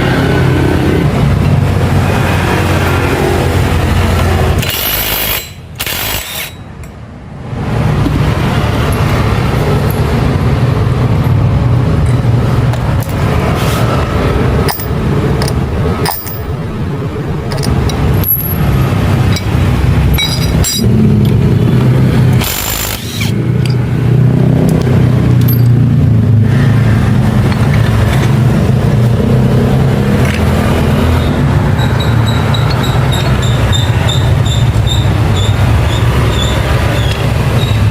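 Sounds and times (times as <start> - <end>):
sharp clicks and knocks: 14.6 - 16.6, 17.4 - 21.5, 24.6 - 26.0, 27.2 - 29.2, 30.1 - 35.6.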